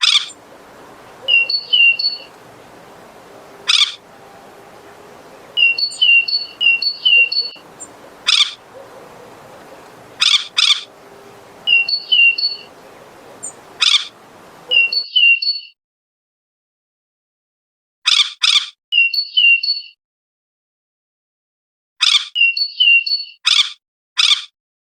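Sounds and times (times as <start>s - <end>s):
harsh rasping bird bursts: 0.0s - 15.0s
robin whistled notes: 0.0s - 15.0s.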